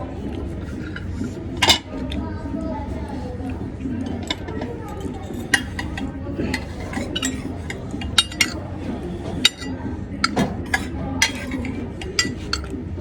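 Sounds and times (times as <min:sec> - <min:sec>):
cutlery clinking against plates: 0:00.0 - 0:02.3, 0:03.0 - 0:12.8.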